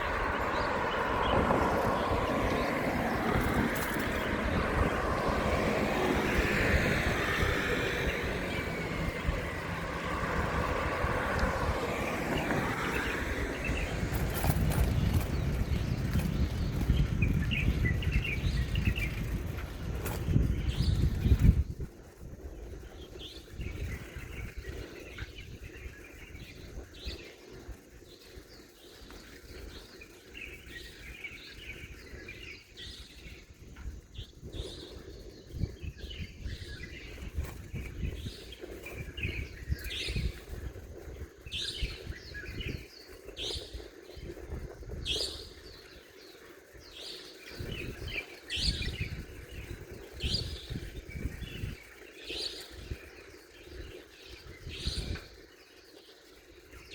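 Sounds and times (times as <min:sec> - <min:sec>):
low rumble: 0:00.0 - 0:22.0
small birds chirping: 0:00.0 - 0:56.9.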